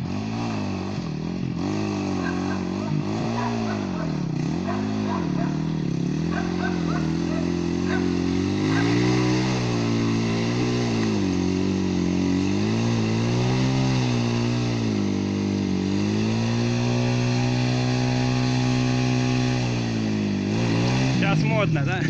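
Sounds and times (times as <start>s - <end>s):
off-road motorcycle engine revving: 0.0s - 22.0s.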